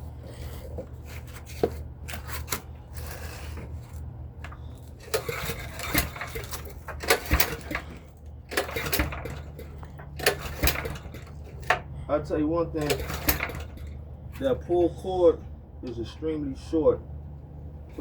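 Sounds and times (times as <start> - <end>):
recoil pull cord clicking and rattling: 2.1 - 11.8, 12.8 - 14.0.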